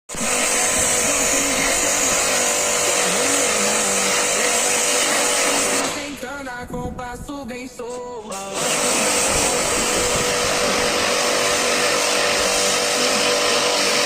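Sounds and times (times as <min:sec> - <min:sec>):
machine rushing hiss: 0:00.1 - 0:06.4, 0:08.3 - 0:14.0.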